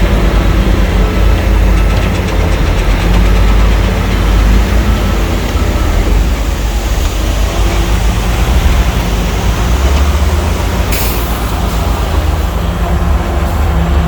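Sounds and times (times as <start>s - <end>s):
diesel machinery engines rumbling: 0.0s - 14.0s
brief hiss: 10.9s - 11.5s.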